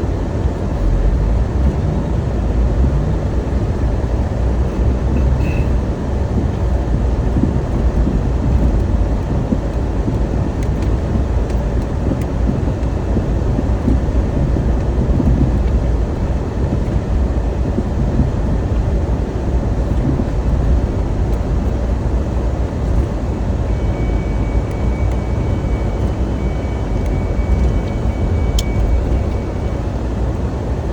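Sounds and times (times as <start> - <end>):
loud low rumbling: 0.0 - 30.9
faint high steady tones: 23.2 - 30.9.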